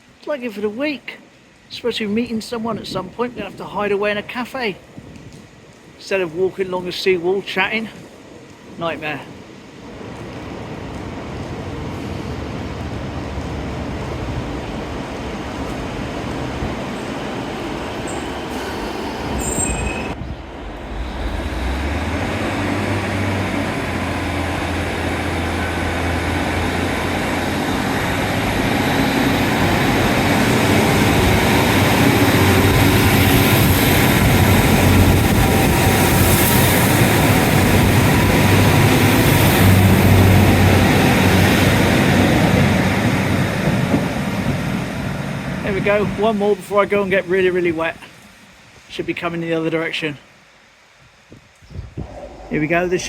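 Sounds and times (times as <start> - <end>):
train wheel noise: 7.9 - 46.3
diesel train engine drone: 9.3 - 46.2, 52.0 - 53.0
high-pitched wheel squeal: 18.1 - 20.2.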